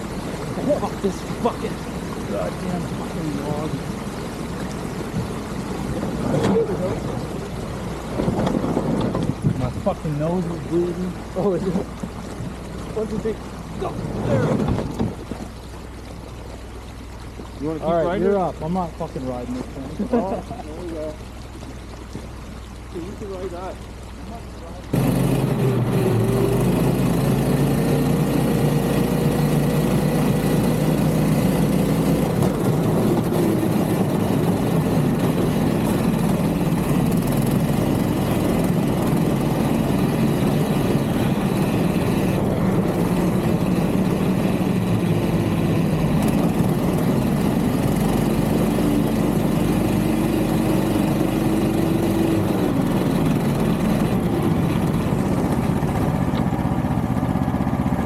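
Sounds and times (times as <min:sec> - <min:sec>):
small vehicle engine running: 0:24.9 - 0:58.0.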